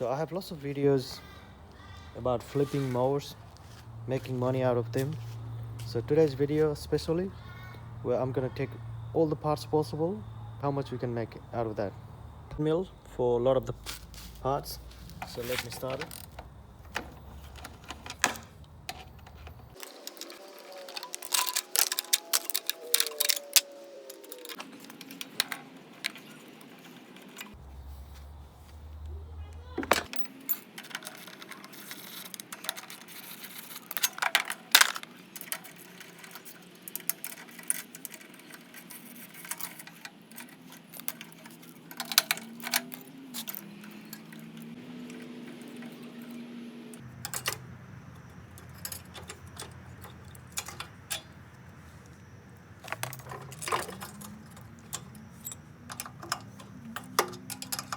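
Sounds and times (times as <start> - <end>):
metal tools clinking: 13.7 - 27.6, 29.8 - 57.9.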